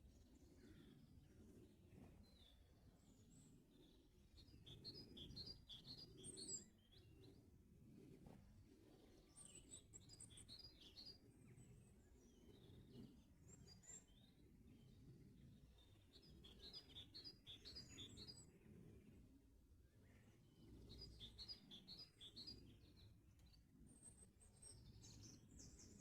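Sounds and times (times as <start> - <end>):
songbirds chirping: 9.3 - 19.3, 20.0 - 26.0.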